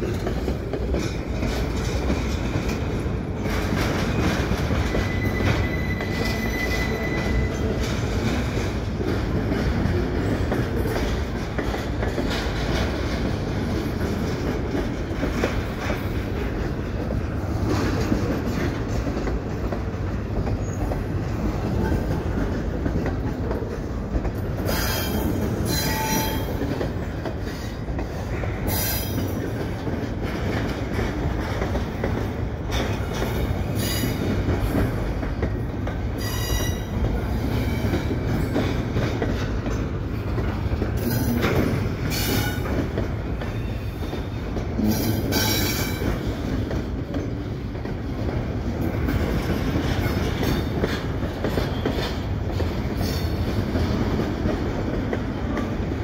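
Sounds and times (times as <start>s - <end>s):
freight cars rumbling on rails: 0.0s - 56.0s
steel wheels squealing: 4.2s - 7.8s, 24.7s - 26.6s, 36.2s - 38.6s.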